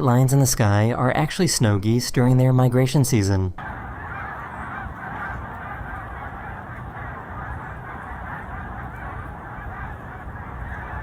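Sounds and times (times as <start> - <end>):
geese flock honking: 3.6 - 11.0.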